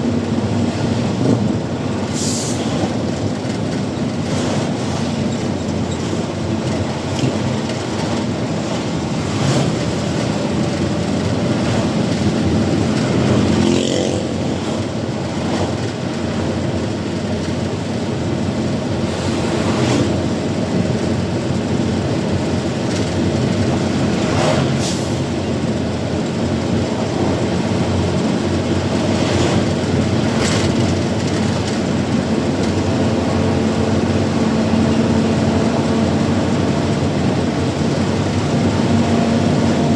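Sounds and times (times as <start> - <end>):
road noise: 0.0 - 39.9
truck engine running: 0.0 - 39.9
short air hisses: 2.1 - 2.8, 24.6 - 25.3.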